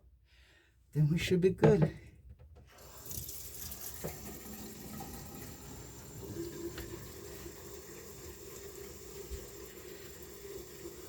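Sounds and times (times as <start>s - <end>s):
water pouring into sink basin: 2.7s - 11.0s.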